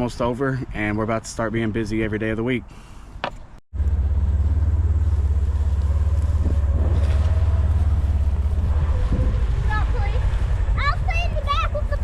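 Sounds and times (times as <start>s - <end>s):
vehicle engine rumbling: 2.7s - 12.0s.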